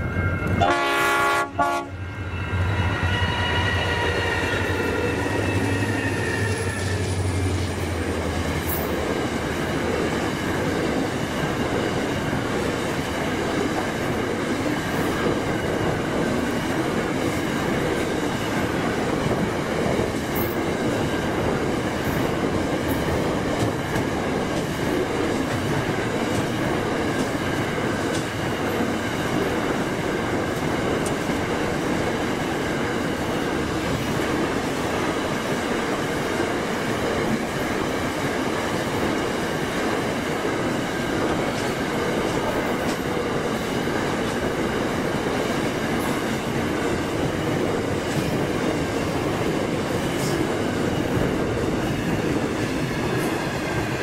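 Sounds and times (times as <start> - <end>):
freight train wheels rumbling on rail: 0.0 - 54.0
wheels clicking over rail joints: 19.2 - 29.5.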